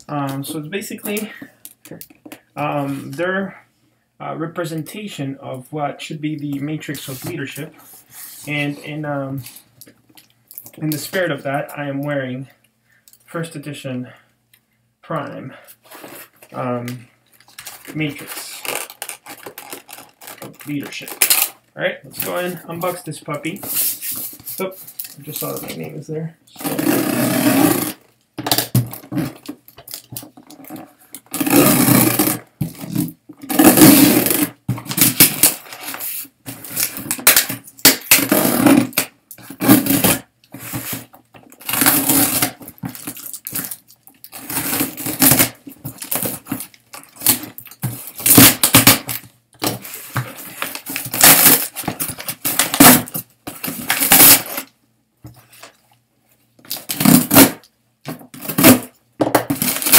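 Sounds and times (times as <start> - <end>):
packaging crinkling and ripping: 17.4 - 23.0, 27.8 - 54.7, 58.4 - 59.9.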